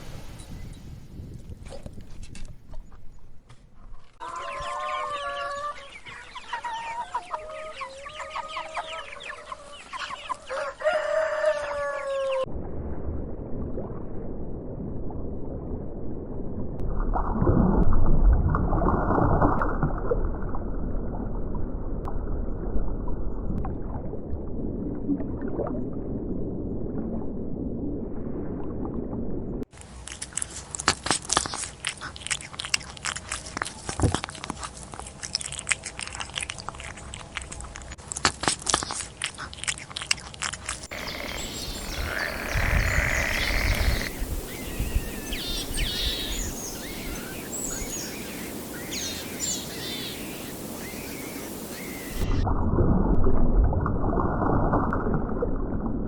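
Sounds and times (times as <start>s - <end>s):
chickens clucking: 4.2s - 10.7s, 40.8s - 52.2s
rooster crowing: 10.5s - 12.4s, 40.9s - 45.5s.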